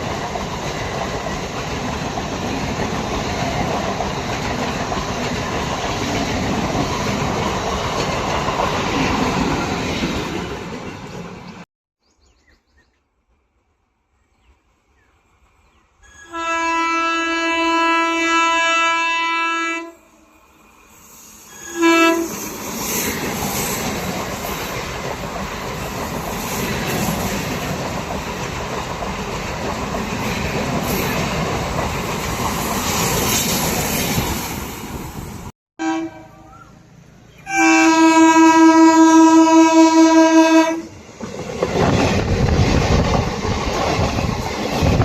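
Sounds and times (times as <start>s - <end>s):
train passing at speed: 0.0s - 11.7s, 13.2s - 45.0s
locomotive horn blasts: 16.1s - 20.1s, 21.5s - 22.4s, 35.8s - 36.7s, 37.4s - 40.9s.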